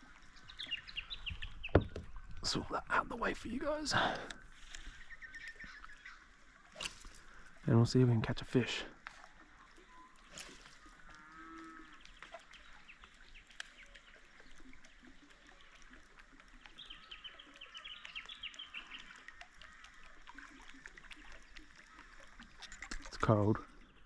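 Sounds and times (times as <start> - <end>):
faint birds calling: 0.0 - 7.8, 8.5 - 24.0
drawn-out animal call: 10.8 - 12.5.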